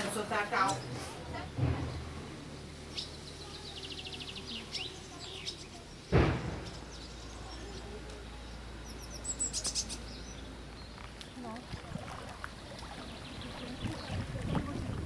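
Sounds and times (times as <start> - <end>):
small birds chirping: 0.0 - 15.0
steady low hum: 0.0 - 15.0
short thump: 1.5 - 2.2, 6.1 - 6.8.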